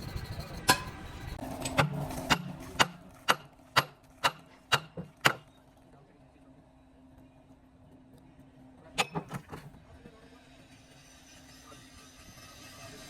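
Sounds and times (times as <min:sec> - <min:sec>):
hammer striking metal: 0:01.6 - 0:05.5.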